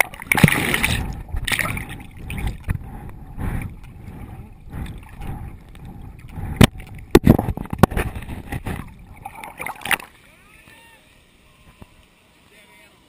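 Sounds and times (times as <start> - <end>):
water sloshing and gurgling: 0.0 - 10.4.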